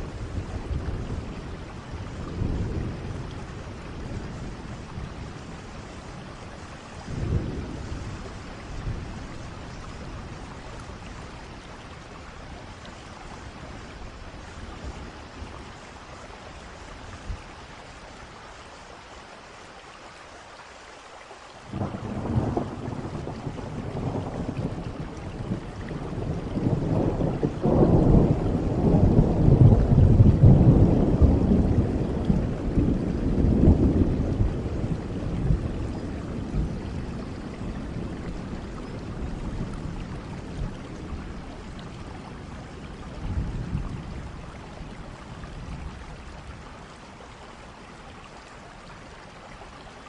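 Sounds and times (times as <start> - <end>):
thunder rumbling: 0.0 - 12.8, 21.7 - 46.9
steady rain: 0.0 - 50.0.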